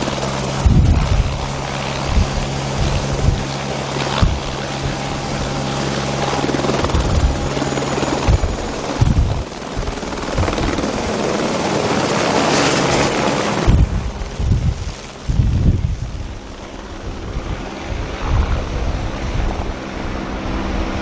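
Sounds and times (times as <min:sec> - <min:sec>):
helicopter engine and rotor: 0:00.0 - 0:21.0.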